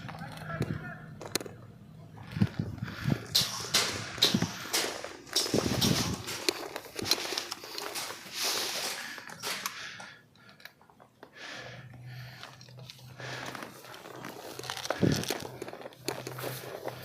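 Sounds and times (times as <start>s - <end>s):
footsteps on ground: 2.3s - 9.4s, 12.2s - 17.0s
clothing and gear rustling: 2.3s - 9.7s, 12.1s - 17.0s.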